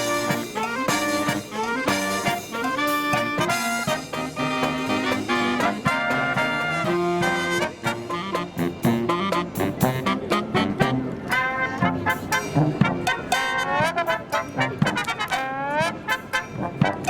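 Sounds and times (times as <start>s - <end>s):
drum strokes: 0.0s - 10.2s
brass marching band playing: 0.0s - 17.0s.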